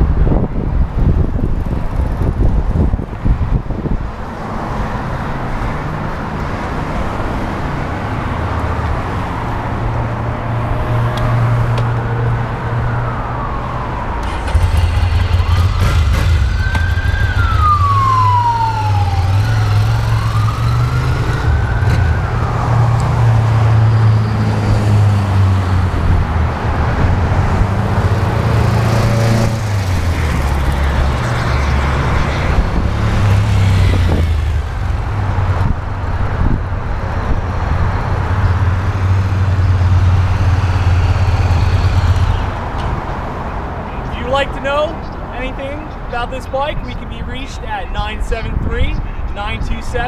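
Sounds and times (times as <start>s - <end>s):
siren wailing: 12.2s - 24.5s, 30.0s - 34.7s
motorcycle engine revving: 14.2s - 22.5s, 27.6s - 35.2s, 39.3s - 42.6s.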